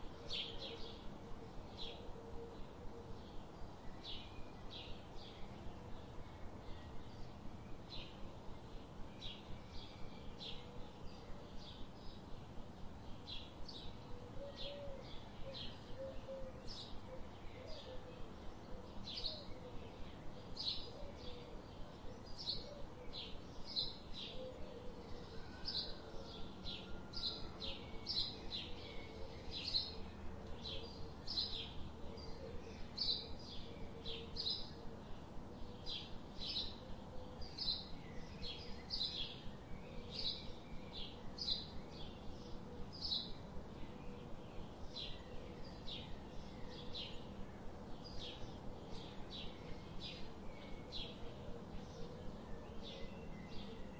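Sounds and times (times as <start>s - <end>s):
bird chirping: 13.1s - 53.9s.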